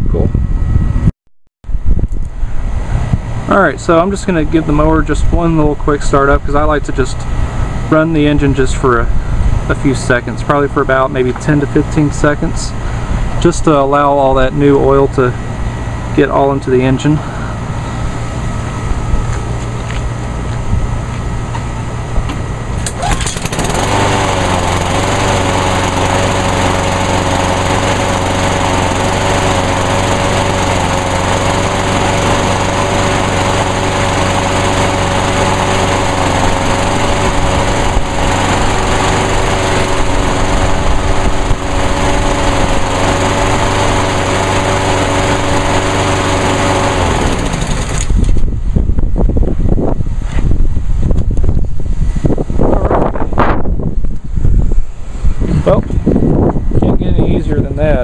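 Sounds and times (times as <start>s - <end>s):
lawnmower engine running: 2.4s - 48.5s.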